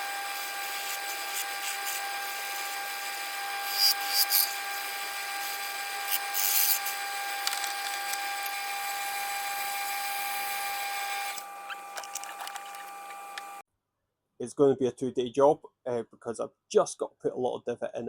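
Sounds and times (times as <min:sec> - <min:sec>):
power tool motor running: 0:00.0 - 0:13.6
wood being cut: 0:00.0 - 0:13.6.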